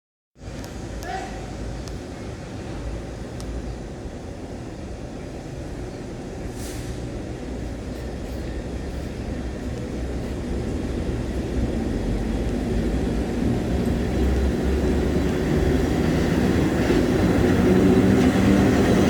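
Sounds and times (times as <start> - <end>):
electric train rumbling: 0.4 - 19.0
short hiss: 6.5 - 7.1.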